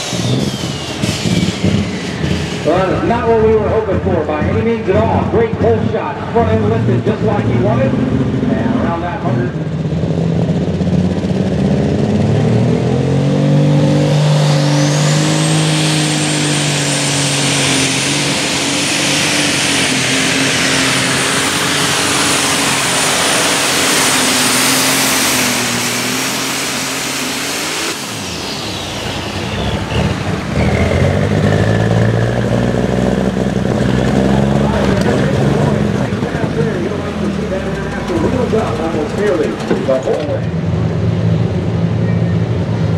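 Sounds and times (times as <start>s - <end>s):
high turbo whistle: 0.0s - 4.0s, 14.0s - 32.0s
diesel tractor engine pulling: 0.0s - 42.9s.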